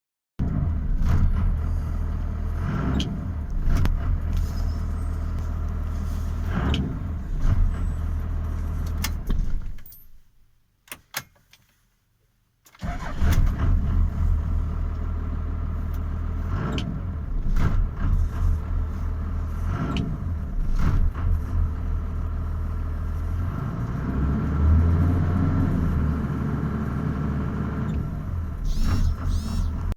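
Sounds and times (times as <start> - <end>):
diesel engine idling roughly: 28.6 - 29.9.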